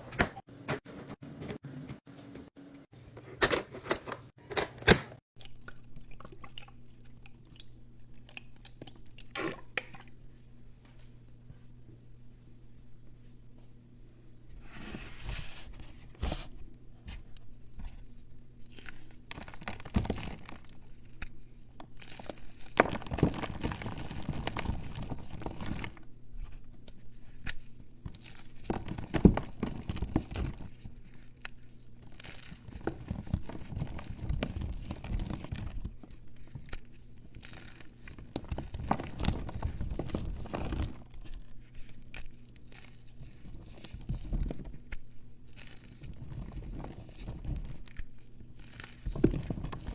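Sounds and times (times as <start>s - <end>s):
material crunching and tearing: 27.2s - 49.9s.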